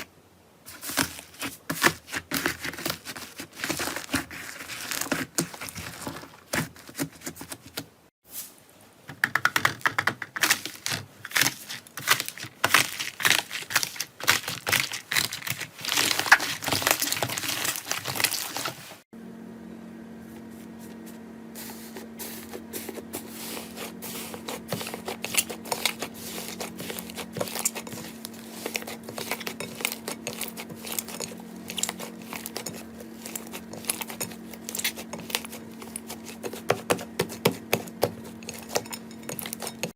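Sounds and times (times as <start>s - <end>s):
steady hum: 19.0s - 39.9s.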